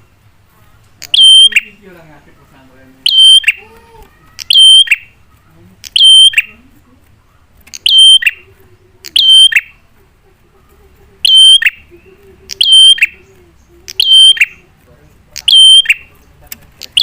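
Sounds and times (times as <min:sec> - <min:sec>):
shrill bird call: 0:03.1 - 0:05.2, 0:05.9 - 0:06.6, 0:07.8 - 0:08.4, 0:09.2 - 0:09.8, 0:11.2 - 0:11.9, 0:12.6 - 0:13.3, 0:13.9 - 0:14.6, 0:15.5 - 0:16.1.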